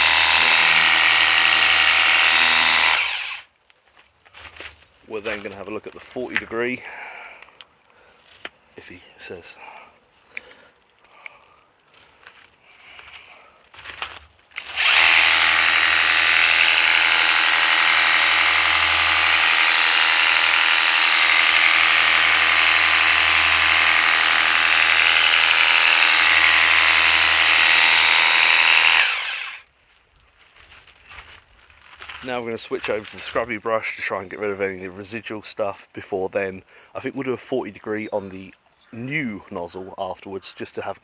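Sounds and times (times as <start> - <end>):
pressure washer motor whine: 0.0 - 3.4.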